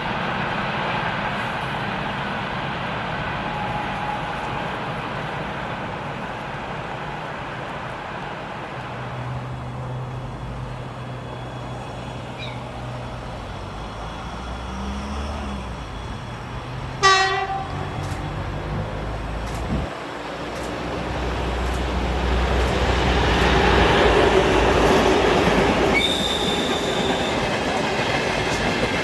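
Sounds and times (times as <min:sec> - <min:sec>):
freight train rumbling: 0:00.0 - 0:29.0
locomotive horn toot: 0:16.9 - 0:18.0, 0:25.9 - 0:27.4.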